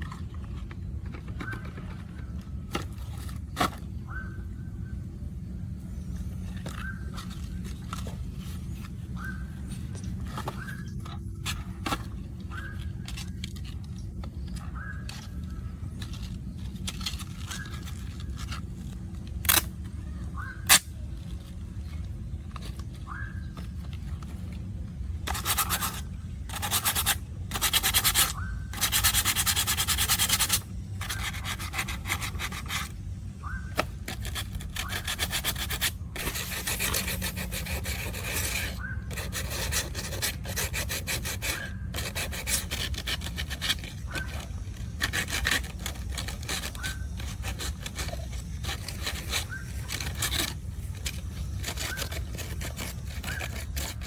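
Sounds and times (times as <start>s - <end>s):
abrasive rubbing on a surface: 25.3s - 33.0s, 34.0s - 54.0s.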